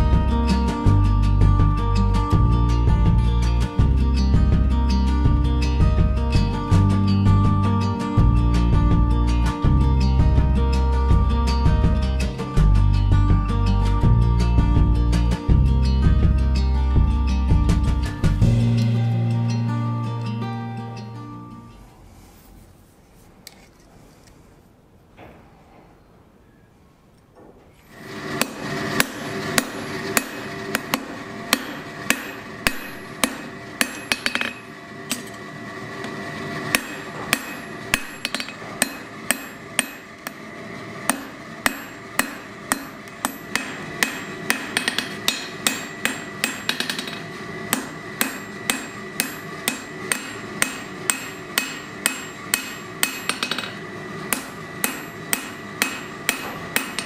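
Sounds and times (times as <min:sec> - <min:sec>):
hammer ringing on anvil: 0:28.4 - 0:35.3, 0:36.7 - 0:40.4, 0:41.1 - 0:57.0.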